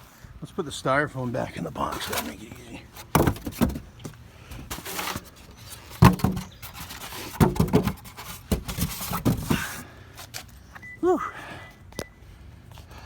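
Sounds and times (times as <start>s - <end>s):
styrofoam and cardboard handled: 1.5s - 10.5s.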